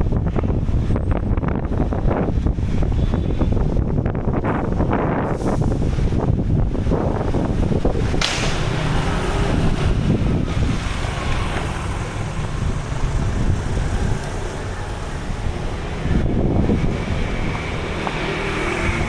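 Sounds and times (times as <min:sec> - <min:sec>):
wind buffeting microphone: 0:00.0 - 0:19.0
sudden rush of noise: 0:04.4 - 0:19.0.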